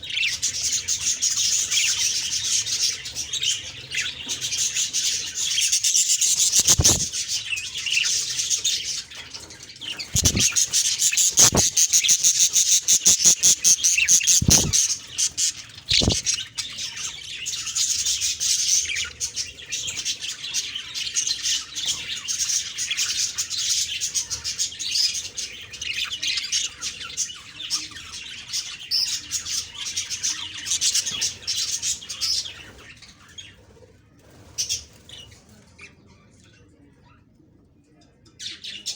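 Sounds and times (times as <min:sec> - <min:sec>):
budgerigars chirping: 0:00.0 - 0:27.0.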